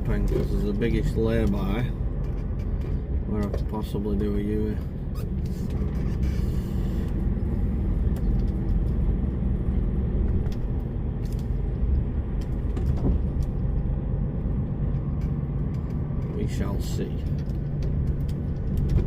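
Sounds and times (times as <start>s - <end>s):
diesel engine rumbling: 0.0s - 19.0s
road noise: 0.0s - 19.0s
short knocks and rattles: 12.5s - 13.8s.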